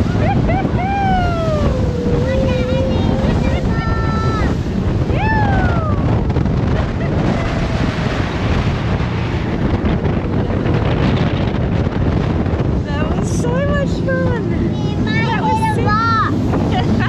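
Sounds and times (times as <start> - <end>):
boat engine: 0.0 - 17.0
wind buffeting microphone: 0.0 - 17.0.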